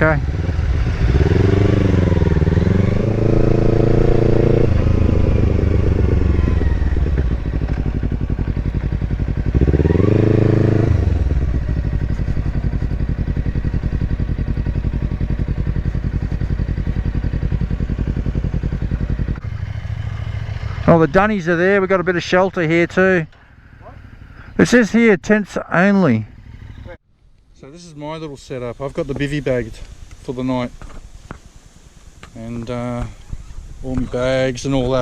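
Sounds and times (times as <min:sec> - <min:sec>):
motorcycle engine revving: 0:00.0 - 0:24.9, 0:25.8 - 0:27.0.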